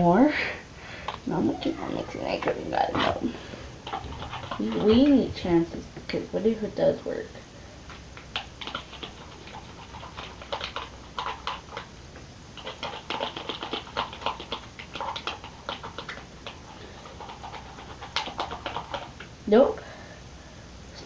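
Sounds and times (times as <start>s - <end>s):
sticky wet stirring clicks: 1.0s - 6.2s, 7.9s - 19.4s.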